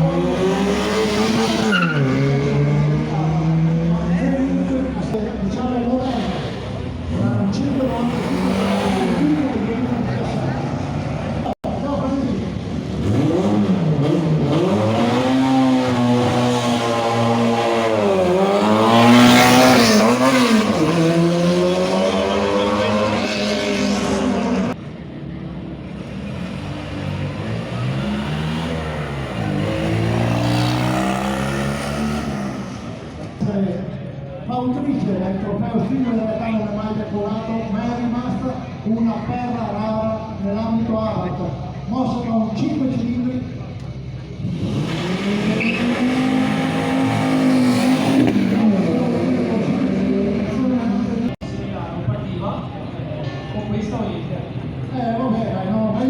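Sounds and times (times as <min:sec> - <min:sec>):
car engine accelerating: 0:05.9 - 0:11.6, 0:12.4 - 0:34.1, 0:43.7 - 0:51.4.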